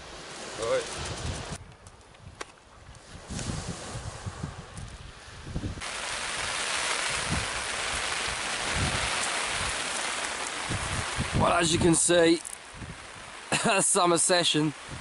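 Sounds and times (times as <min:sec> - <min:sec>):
heavy rain on shingle beach: 0:00.0 - 0:01.6, 0:03.2 - 0:15.0
wind rumble on microphone: 0:00.6 - 0:09.9, 0:10.6 - 0:12.1, 0:12.7 - 0:13.4, 0:14.8 - 0:15.0.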